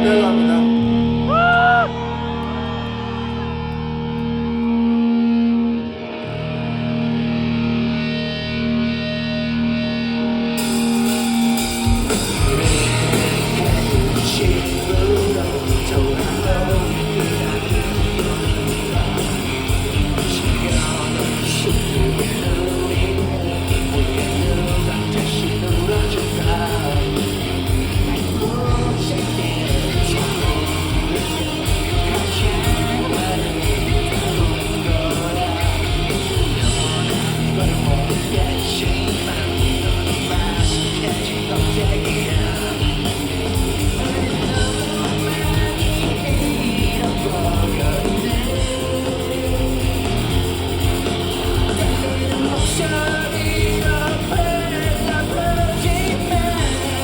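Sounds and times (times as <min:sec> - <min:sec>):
bass guitar: 0:00.0 - 0:57.0
drums: 0:00.0 - 0:57.0
electric guitars: 0:00.0 - 0:57.0
person singing: 0:11.9 - 0:57.0.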